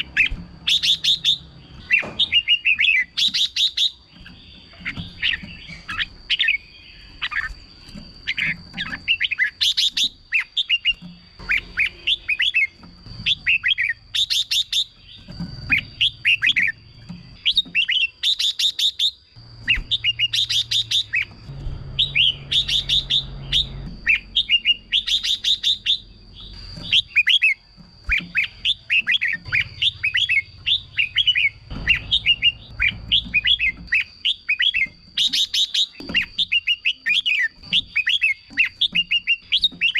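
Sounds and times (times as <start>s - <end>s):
harsh rasping bird notes: 0.0s - 39.9s
bird song whistled phrases: 21.9s - 39.9s.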